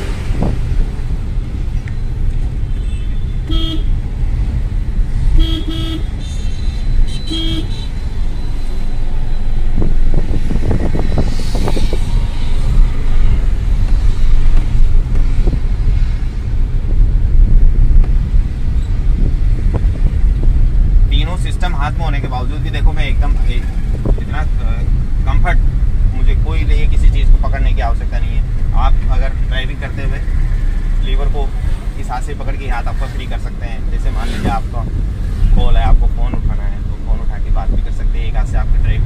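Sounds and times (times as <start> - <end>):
road and engine rumble: 0.0 - 39.0
car horn toots: 2.8 - 4.0, 5.4 - 8.0.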